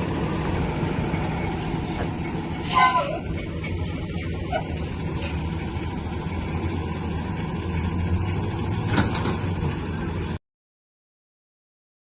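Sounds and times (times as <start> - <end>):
large vehicle engine idling: 0.0 - 10.4.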